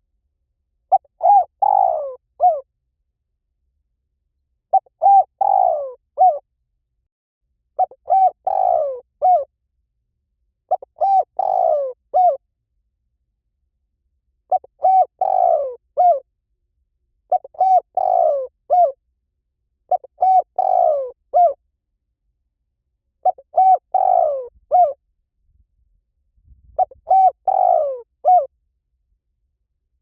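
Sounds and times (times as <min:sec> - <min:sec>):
dove cooing: 0:00.9 - 0:02.6, 0:04.7 - 0:06.4, 0:07.8 - 0:09.5, 0:10.7 - 0:12.4, 0:14.5 - 0:16.2, 0:17.3 - 0:19.0, 0:19.9 - 0:21.6, 0:23.2 - 0:25.0, 0:26.8 - 0:28.5.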